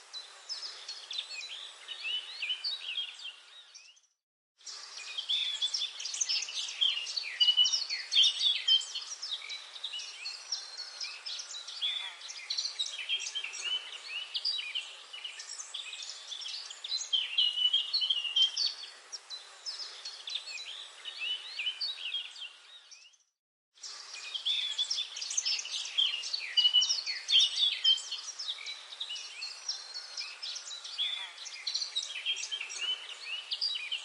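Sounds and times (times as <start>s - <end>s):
forest birds chirping chorus: 0.0s - 34.0s.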